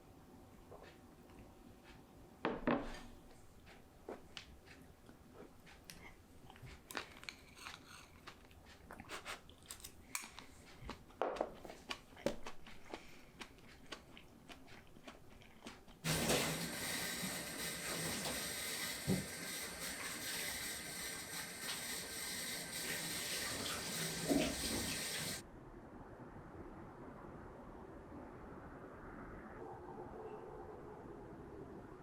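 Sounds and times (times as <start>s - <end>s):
chewing and crunching food: 3.3s - 16.1s
tap running water: 16.0s - 25.4s.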